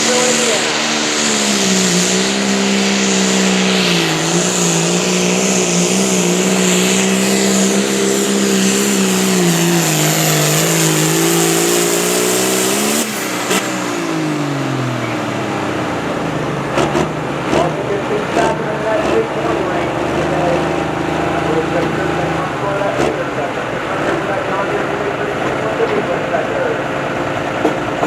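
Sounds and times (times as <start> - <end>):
engine at high revs: 0.0 - 28.0.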